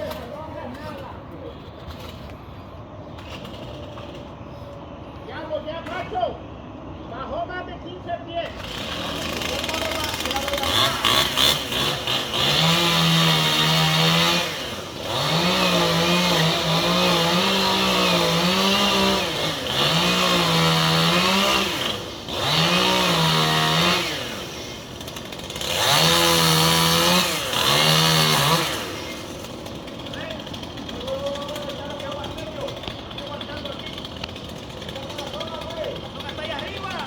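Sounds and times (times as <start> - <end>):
chainsaw cutting at full throttle: 8.5 - 37.0.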